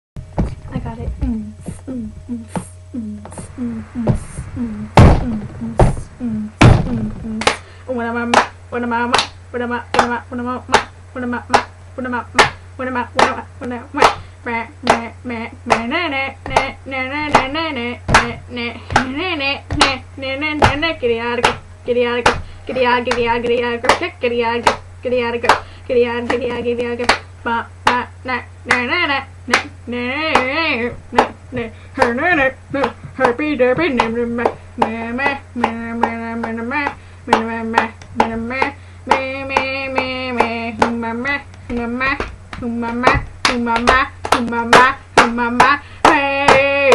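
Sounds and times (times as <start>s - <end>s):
low electrical hum: 0.2s - 46.9s
wavering vocal noises: 0.8s - 46.9s
person making long vocal tones: 1.2s - 8.0s
regular claps or slaps: 5.0s - 12.6s, 13.2s - 15.1s, 15.7s - 28.1s, 28.7s - 28.9s, 29.5s - 46.9s.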